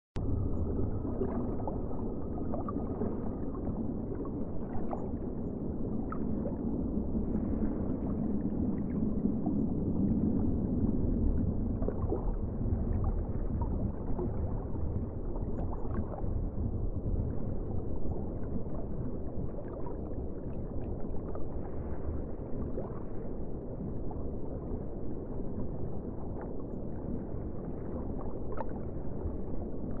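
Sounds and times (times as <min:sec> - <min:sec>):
muffled underwater rumble: 0:00.2 - 0:30.0.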